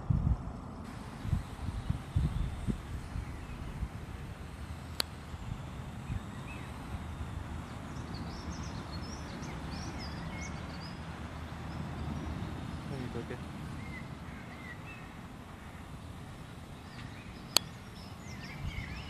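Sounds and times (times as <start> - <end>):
small birds chirping: 0.9 - 19.0
sharp click: 4.9 - 5.2, 17.0 - 17.8.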